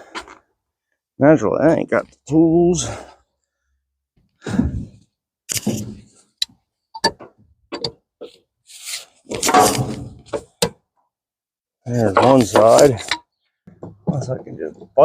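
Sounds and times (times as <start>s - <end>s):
metallic clicks and knocks: 6.4s - 8.0s, 12.2s - 15.0s.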